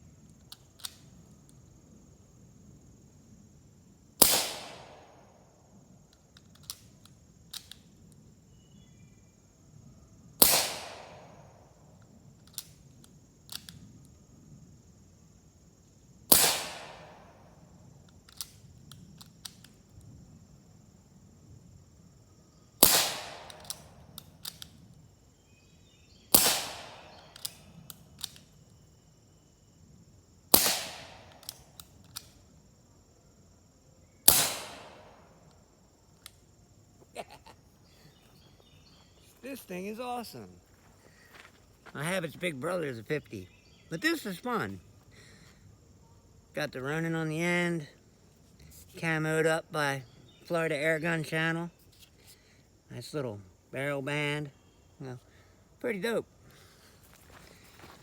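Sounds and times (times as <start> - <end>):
clicks of gun action: 0.4 - 1.1, 6.1 - 7.9, 12.4 - 13.8, 18.2 - 19.8, 22.8 - 24.8, 26.4 - 28.5, 31.3 - 32.4
air pistol shots: 4.2 - 5.3, 10.4 - 11.6, 16.3 - 17.4, 22.8 - 24.6, 26.3 - 28.4, 30.5 - 32.3, 34.3 - 35.4.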